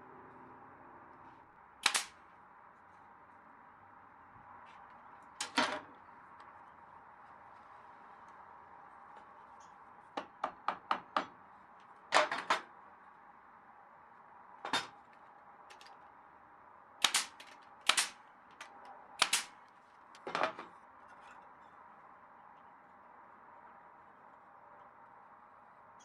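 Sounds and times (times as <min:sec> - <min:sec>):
nails hammered into planks: 0:01.8 - 0:02.1, 0:10.2 - 0:11.4, 0:17.0 - 0:18.2, 0:19.2 - 0:19.5.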